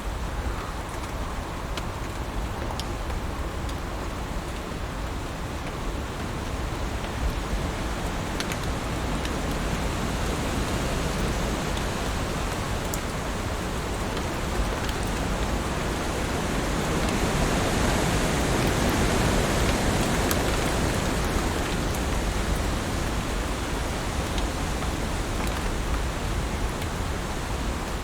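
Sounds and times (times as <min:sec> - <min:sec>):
heavy rain falling: 0:00.1 - 0:28.0
raindrops ticking: 0:05.6 - 0:27.1.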